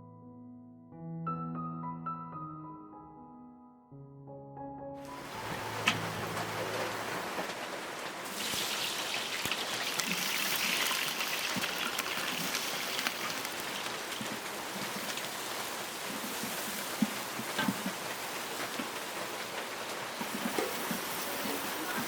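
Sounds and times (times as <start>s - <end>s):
rain drops ticking on surfaces: 5.1s - 22.0s.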